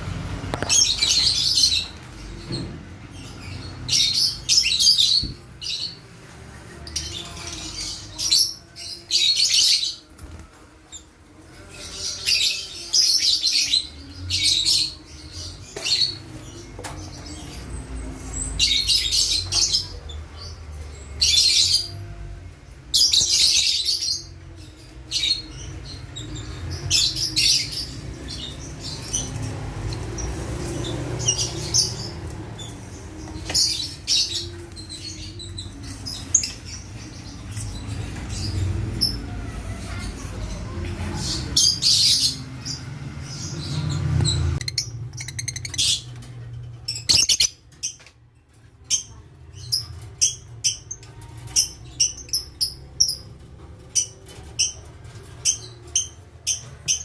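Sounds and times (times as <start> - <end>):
lovebirds chattering: 43.4 - 48.0.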